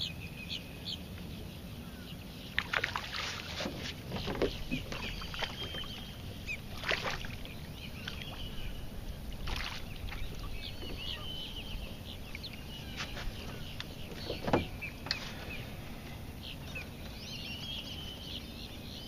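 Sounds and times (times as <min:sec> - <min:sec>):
birds chirping: 0:00.0 - 0:19.0
low steady rumble: 0:03.7 - 0:19.0.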